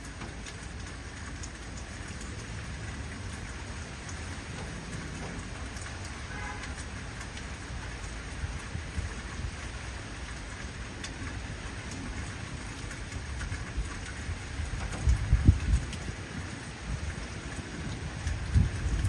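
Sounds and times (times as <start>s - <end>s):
heavy rain: 0.0s - 19.0s
low rumble of thunder: 12.0s - 19.0s.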